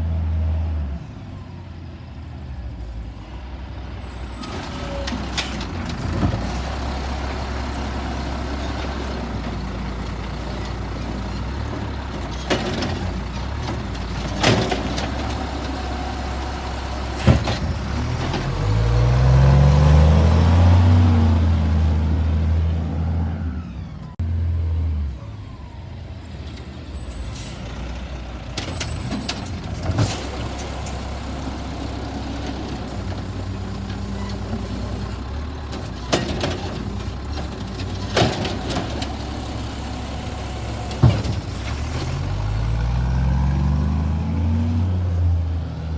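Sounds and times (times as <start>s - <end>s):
engine revving: 14.4s - 25.2s, 38.9s - 45.9s.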